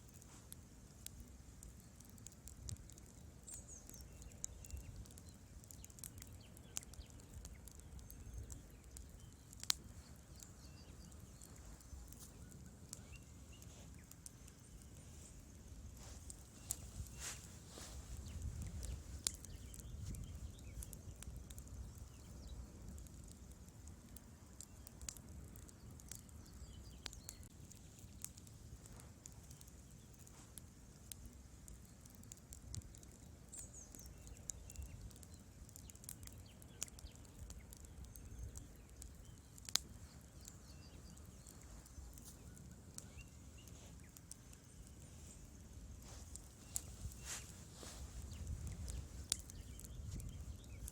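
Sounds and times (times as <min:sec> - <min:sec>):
crackles and pops of burning logs: 0:00.0 - 0:50.9
low rumble of flames: 0:00.0 - 0:50.9.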